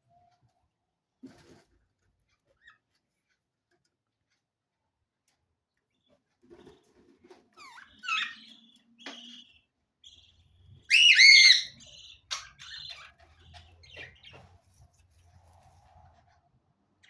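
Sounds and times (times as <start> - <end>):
parrots chirping and calling: 7.6 - 14.4.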